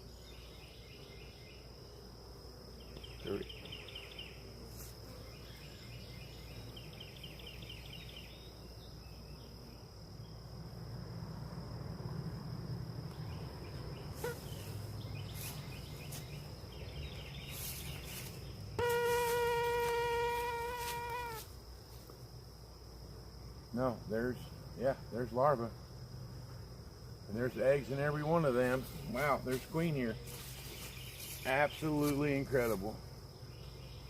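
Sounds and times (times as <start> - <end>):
crickets chirping: 0.0 - 34.0
honeybees humming: 0.0 - 34.0
bee buzzing close: 13.8 - 21.6.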